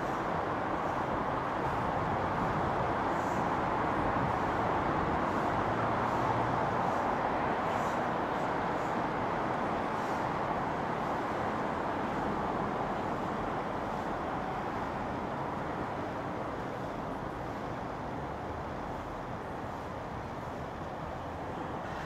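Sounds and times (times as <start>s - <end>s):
train running noise: 0.0s - 22.0s.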